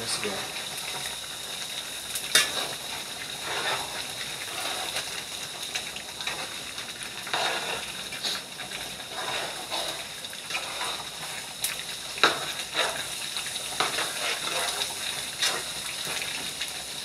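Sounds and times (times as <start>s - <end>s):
chicken sizzling in a pan: 0.0s - 17.0s
metal spoon scraping a pan: 2.3s - 5.2s, 7.2s - 11.5s, 12.2s - 16.3s.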